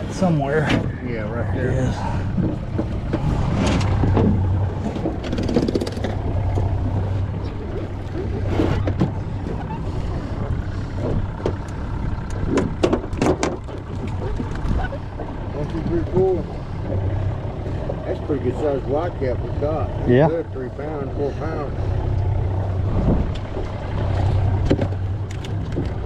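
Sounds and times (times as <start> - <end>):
outboard motor idling: 0.0 - 26.0
knocks and clatter: 2.4 - 7.1, 12.4 - 15.3, 24.6 - 26.0.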